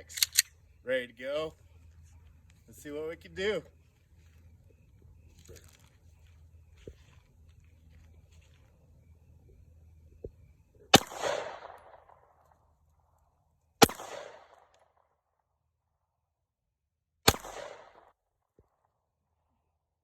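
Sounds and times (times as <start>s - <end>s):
pistol shots with echo: 10.9s - 12.4s, 13.8s - 14.7s, 17.3s - 18.1s.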